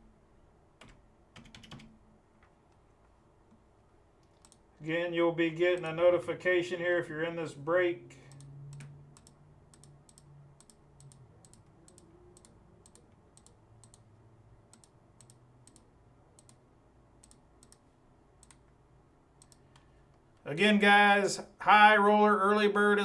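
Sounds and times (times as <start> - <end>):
keyboard typing clicks: 0.8 - 2.0, 4.2 - 4.8, 8.3 - 14.1, 14.7 - 16.6, 17.2 - 18.8, 19.4 - 19.9.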